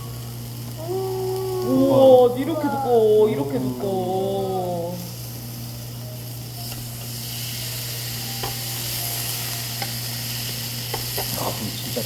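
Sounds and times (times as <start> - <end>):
steady low hum: 0.0 - 7.2
beef sizzling on a grill: 0.0 - 12.0.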